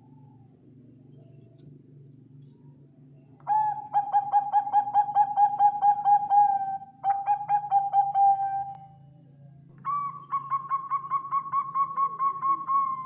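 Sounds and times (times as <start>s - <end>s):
faint low hum: 0.0s - 13.0s
dove cooing call: 3.4s - 9.0s, 9.8s - 13.0s.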